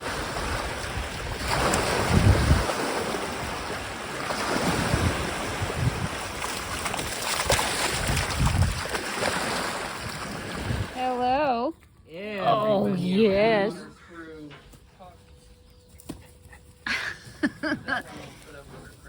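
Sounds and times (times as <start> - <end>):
lake waves washing onto shore: 0.0 - 11.4
wind buffeting microphone: 0.0 - 11.4.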